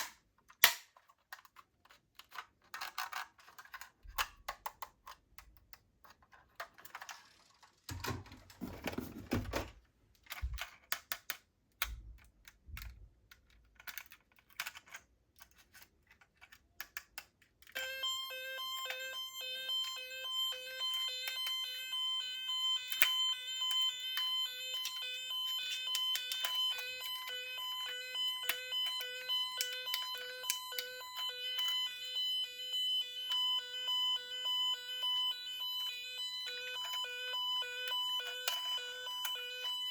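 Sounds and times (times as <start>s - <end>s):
plastic toy clicks and knocks: 0.0s - 9.1s, 10.2s - 17.8s, 22.9s - 27.4s, 28.2s - 32.1s, 37.9s - 39.4s
toy siren beeping: 17.7s - 39.9s.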